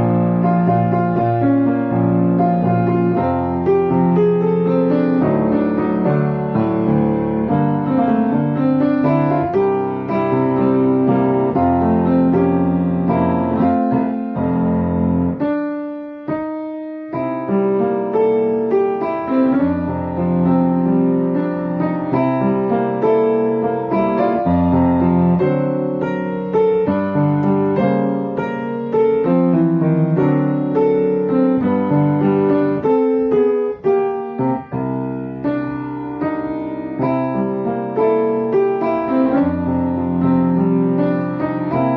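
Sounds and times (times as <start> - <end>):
gentle piano music: 0.0 - 41.9.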